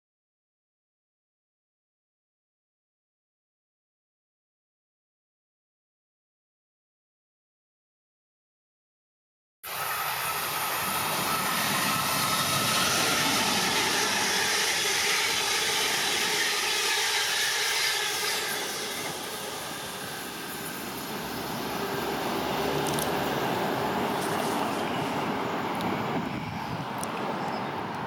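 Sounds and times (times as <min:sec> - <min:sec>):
train rushing past: 0:09.7 - 0:28.0.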